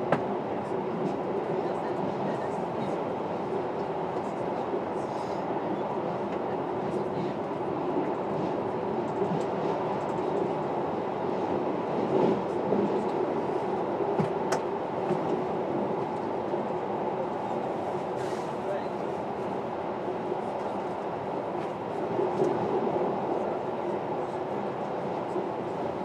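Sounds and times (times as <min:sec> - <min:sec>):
train wheels rumbling on rail: 0:06.1 - 0:16.8.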